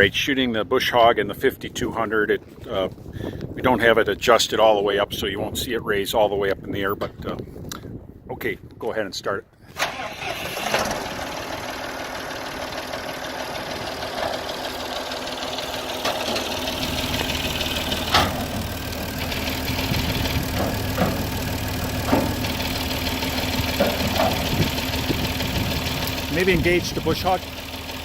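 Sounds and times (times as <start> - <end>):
tractor diesel engine idling: 9.8 - 28.0.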